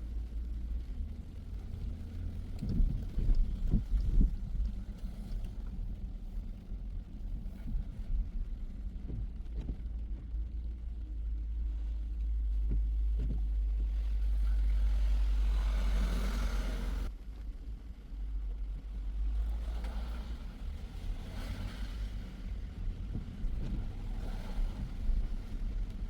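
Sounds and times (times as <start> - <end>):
road noise rumble: 0.0 - 26.0
tyres hissing on wet pavement: 14.8 - 17.1.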